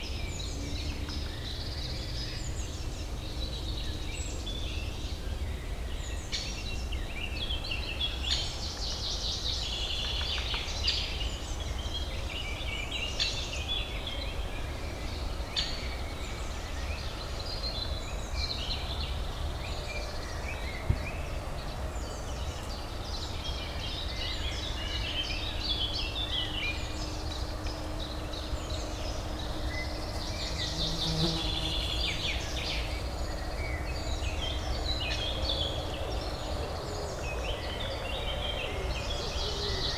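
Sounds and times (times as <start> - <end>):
small birds chirping: 27.3 - 34.6.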